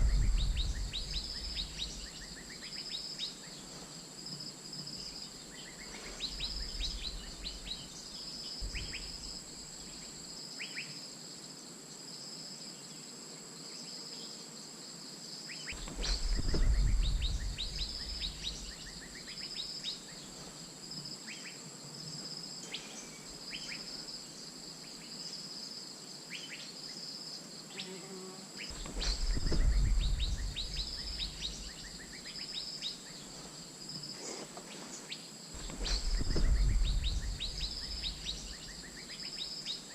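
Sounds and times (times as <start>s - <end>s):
low rumble: 0.0s - 2.4s, 8.6s - 9.4s, 15.8s - 19.0s, 28.7s - 32.0s, 35.6s - 38.8s
high insect drone: 0.0s - 39.9s.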